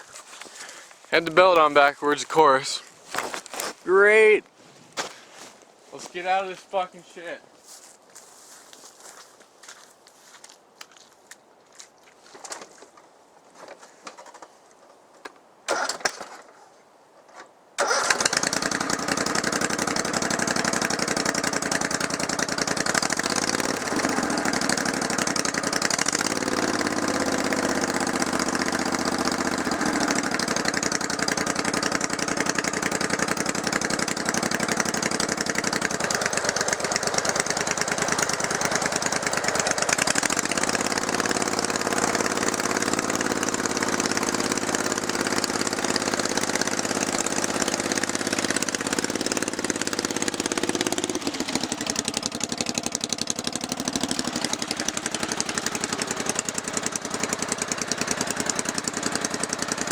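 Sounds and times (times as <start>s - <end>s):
lawn tractor engine starting and running: 15.7s - 16.5s, 17.8s - 59.9s.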